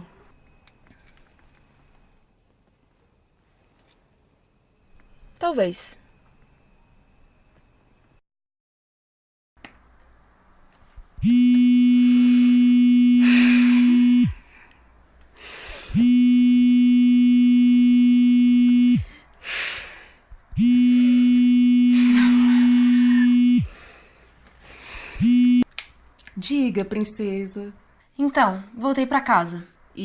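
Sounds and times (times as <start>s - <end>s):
phone ringing buzz tone: 11.2s - 14.4s, 15.9s - 19.2s, 20.6s - 23.7s, 25.2s - 25.6s.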